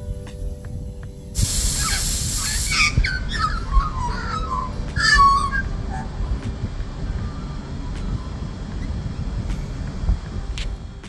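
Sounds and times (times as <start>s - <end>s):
sharp high hiss: 0.0s - 3.4s
steady low rumble: 0.0s - 11.0s
birds warbling calls: 1.4s - 6.2s.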